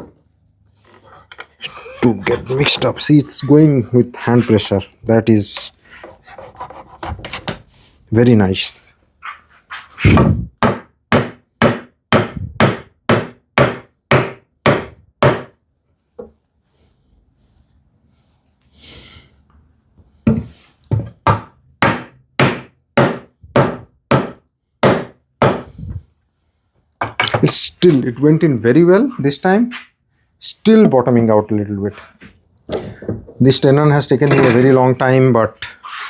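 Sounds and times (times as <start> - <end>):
hammer tapping wood: 21.3 - 25.6.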